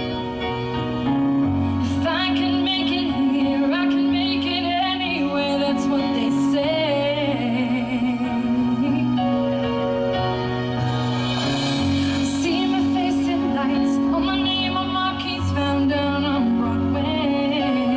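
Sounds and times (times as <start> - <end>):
sustained accompaniment chords: 5.6 - 17.9
woman singing with vibrato: 10.8 - 17.9.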